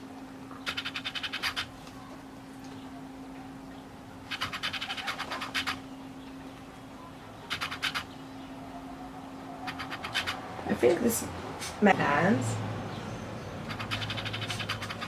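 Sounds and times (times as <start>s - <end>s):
steady low hum: 0.0s - 15.0s
animal ticking trills: 0.5s - 1.8s, 2.6s - 10.6s, 13.6s - 15.0s.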